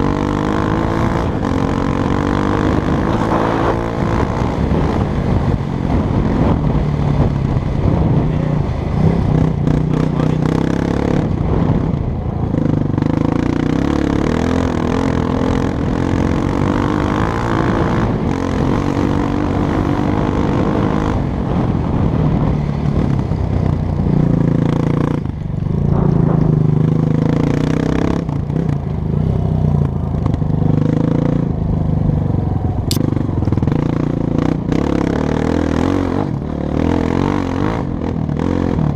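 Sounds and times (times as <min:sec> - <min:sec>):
dirt bike engine revving: 0:00.0 - 0:08.4, 0:24.1 - 0:28.8.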